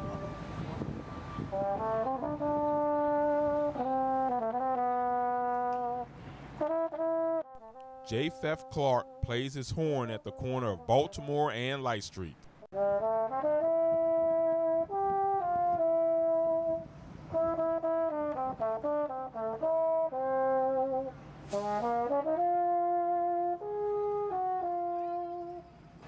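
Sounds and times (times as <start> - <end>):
horn playing slow melody: 0.0 - 12.0, 12.8 - 25.8
brief hiss: 21.4 - 22.0.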